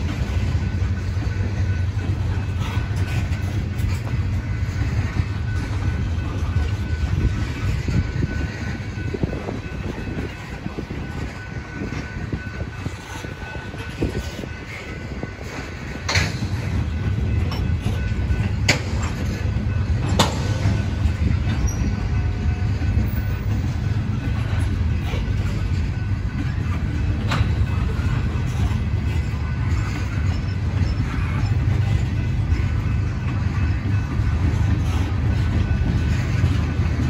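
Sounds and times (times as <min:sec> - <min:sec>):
freight train rolling past: 0:00.0 - 0:37.0
wheels clicking on rails: 0:00.0 - 0:37.0.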